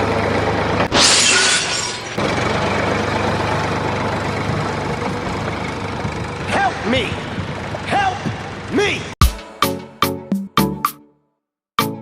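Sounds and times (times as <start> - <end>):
rattling shattering noise: 0.9 - 2.2.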